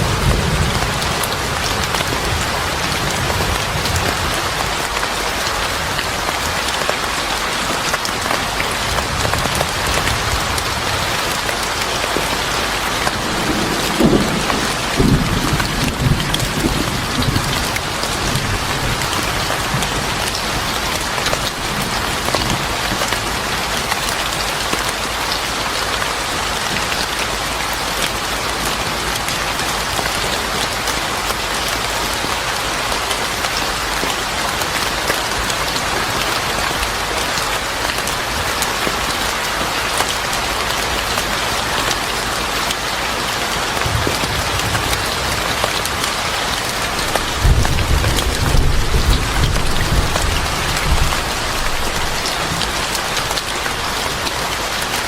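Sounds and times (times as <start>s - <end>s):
thunder rumbling: 0.0s - 4.6s, 12.9s - 20.6s, 46.8s - 54.0s
heavy rain pattering: 0.0s - 55.0s.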